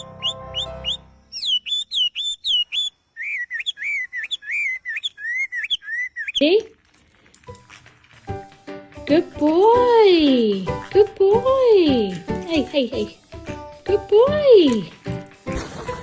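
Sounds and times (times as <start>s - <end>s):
parrot whistling: 0.0s - 6.4s.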